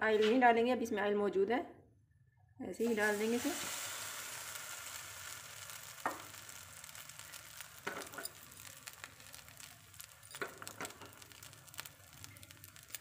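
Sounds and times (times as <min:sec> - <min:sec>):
bread frying in oil: 0:02.8 - 0:13.0.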